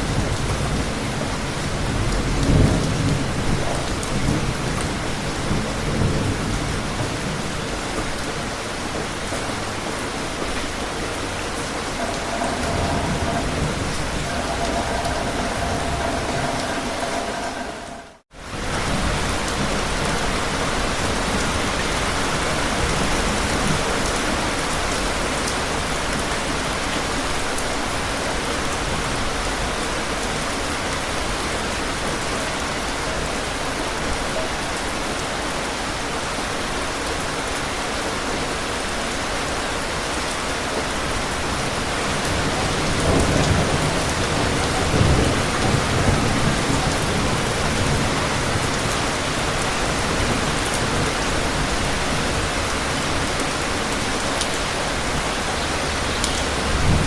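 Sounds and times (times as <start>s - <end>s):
dense rainfall: 0.0s - 57.0s
thunder rumbling: 10.7s - 19.7s, 41.6s - 54.0s.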